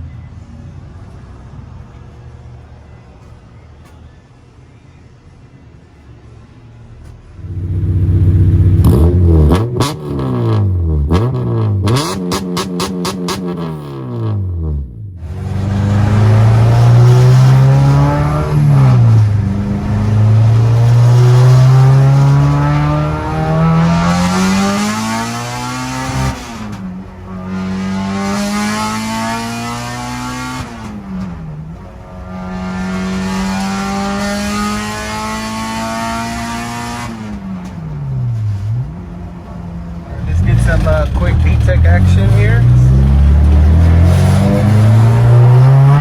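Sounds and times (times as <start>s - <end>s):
car engine accelerating through gears: 7.4s - 46.0s.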